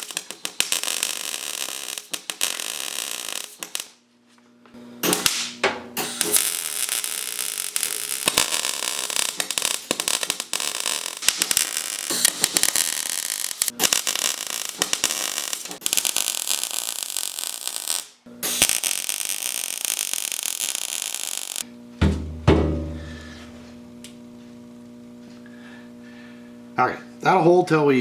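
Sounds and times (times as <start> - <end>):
arc welding crackling: 0.0 - 4.0, 5.0 - 21.7
sharp hits: 22.0 - 23.4.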